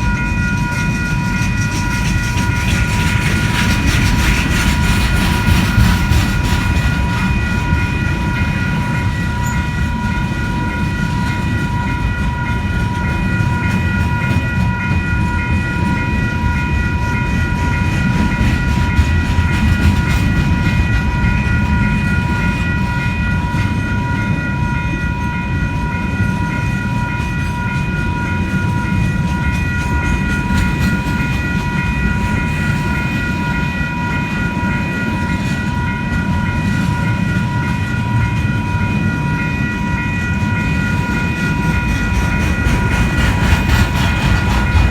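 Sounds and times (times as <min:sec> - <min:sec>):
freight train rumble and clatter: 0:00.0 - 0:44.9
high ringing tone: 0:07.0 - 0:18.1.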